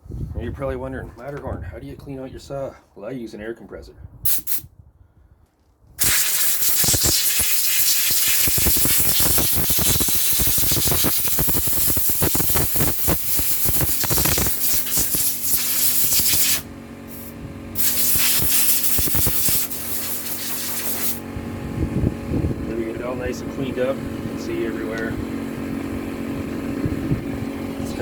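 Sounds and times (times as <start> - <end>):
compressed air hissing: 4.3 - 4.7, 6.0 - 21.2
steady hum: 7.6 - 28.0.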